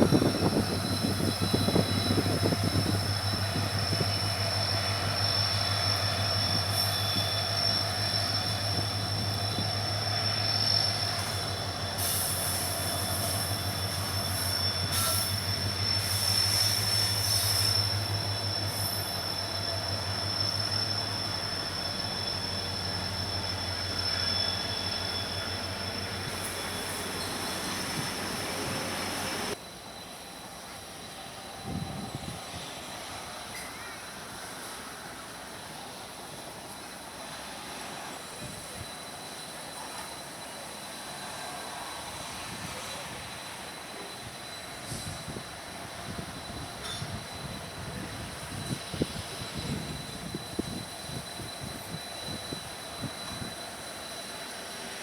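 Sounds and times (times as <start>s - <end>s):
high-pitched wheel squeal: 0.0s - 29.6s
train rumbling past: 0.0s - 55.0s.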